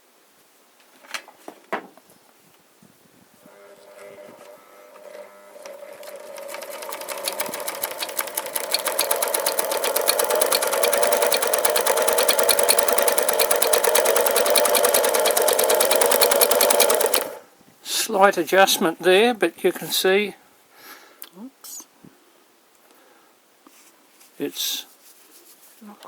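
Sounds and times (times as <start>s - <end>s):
sewing machine stitching: 4.4s - 17.5s.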